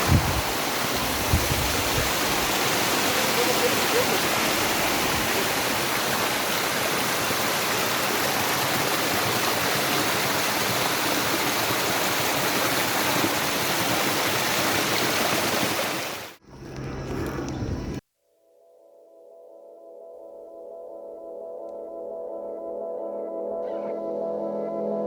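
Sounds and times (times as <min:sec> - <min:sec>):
stream water rushing: 0:00.0 - 0:16.4.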